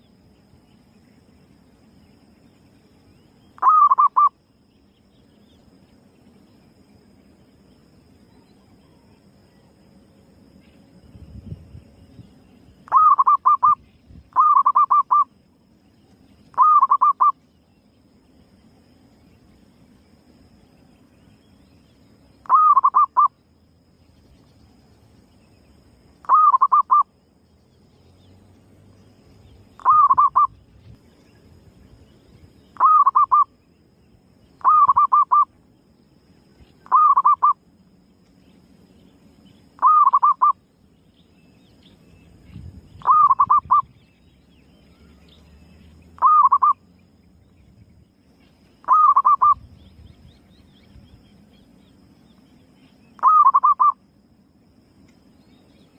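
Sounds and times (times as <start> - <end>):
dove cooing: 3.6 - 4.3, 12.9 - 13.8, 14.4 - 15.3, 16.6 - 17.3, 22.5 - 23.3, 26.2 - 27.0, 29.8 - 30.6, 32.8 - 33.4, 34.6 - 35.5, 36.8 - 37.6, 39.8 - 40.6, 43.0 - 43.8, 46.2 - 46.8, 48.8 - 49.6, 53.2 - 54.0.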